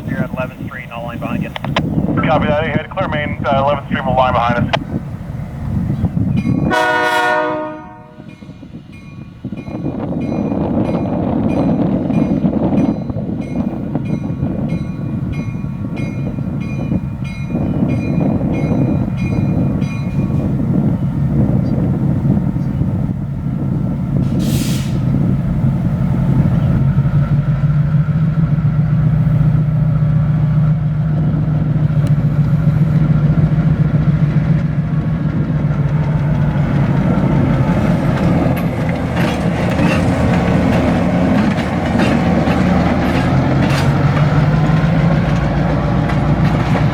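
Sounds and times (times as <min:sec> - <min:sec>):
diesel locomotive engine drone: 0:00.0 - 0:46.9
locomotive bell ringing: 0:06.2 - 0:07.2, 0:07.8 - 0:20.7, 0:34.9 - 0:46.9
air hiss: 0:24.3 - 0:25.1.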